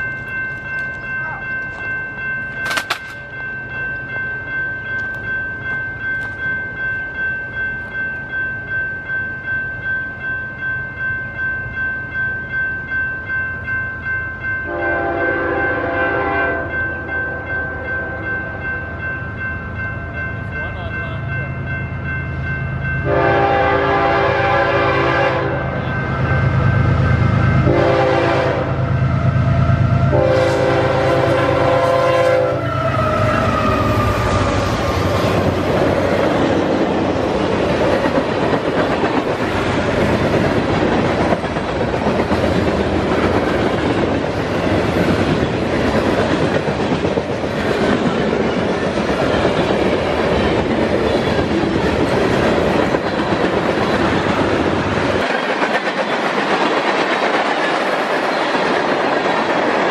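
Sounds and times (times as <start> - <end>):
train wheels rolling on rails: 0.0 - 9.2, 18.2 - 59.9
locomotive air horn blasts: 14.7 - 16.7, 23.0 - 25.8, 27.6 - 28.9, 30.1 - 32.8.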